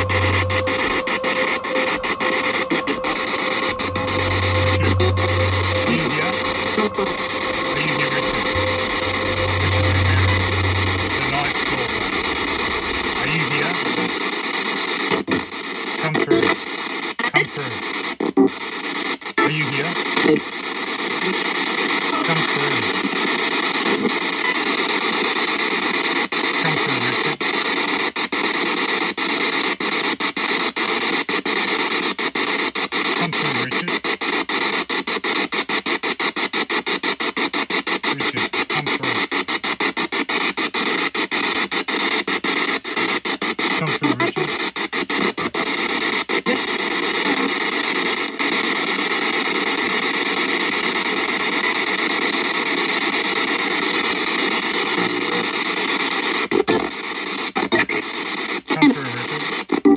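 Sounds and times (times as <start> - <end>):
radio static sweeping: 0.0 - 16.6, 22.2 - 23.0, 33.2 - 34.0, 38.1 - 39.6, 43.6 - 47.5, 54.0 - 55.8, 57.6 - 59.8.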